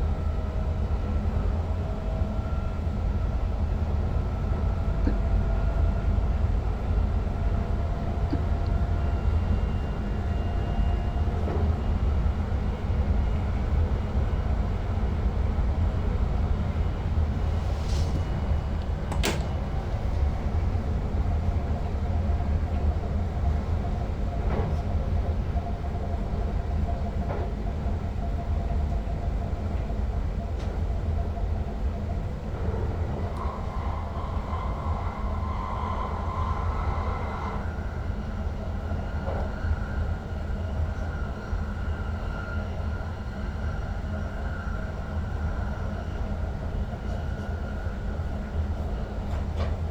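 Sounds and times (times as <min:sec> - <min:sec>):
electric train running: 0:31.8 - 0:42.7.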